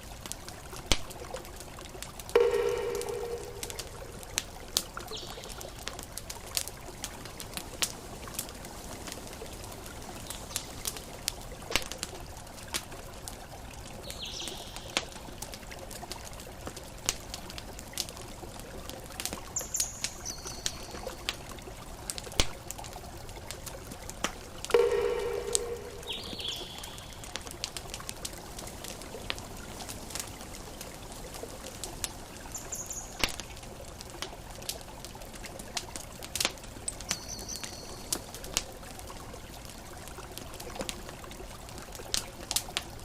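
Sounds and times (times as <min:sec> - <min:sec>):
gentle ocean waves: 0:00.0 - 0:16.4, 0:17.0 - 0:34.3
campfire crackling and popping: 0:00.0 - 0:43.0
high bird chirps: 0:24.8 - 0:27.3
low bird call: 0:24.8 - 0:27.4.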